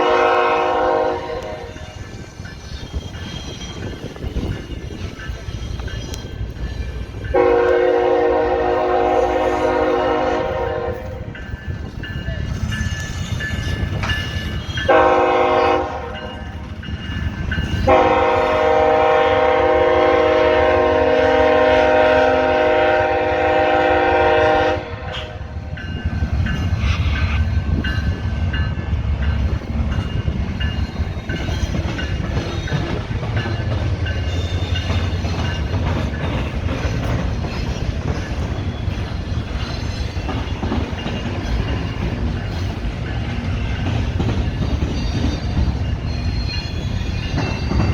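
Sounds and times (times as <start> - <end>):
locomotive horn blasts: 0.0 - 1.9, 7.3 - 11.3, 14.9 - 16.2, 17.9 - 25.5
freight train rumbling and clattering: 0.0 - 47.9.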